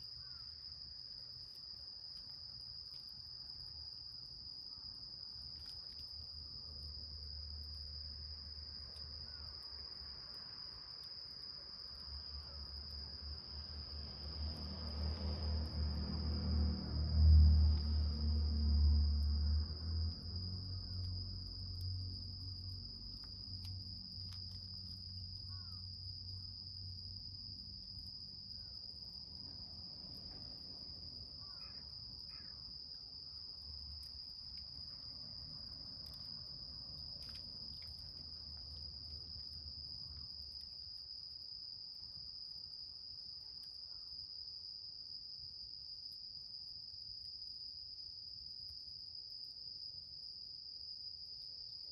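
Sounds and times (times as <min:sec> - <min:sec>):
insects trilling: 0:00.0 - 0:06.4, 0:08.6 - 0:18.5, 0:20.3 - 0:44.2.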